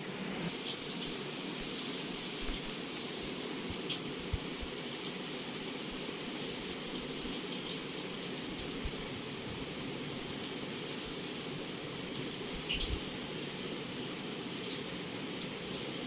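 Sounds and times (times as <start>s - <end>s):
heavy rain on a window: 0.0s - 16.0s
raindrops ticking: 0.8s - 10.4s.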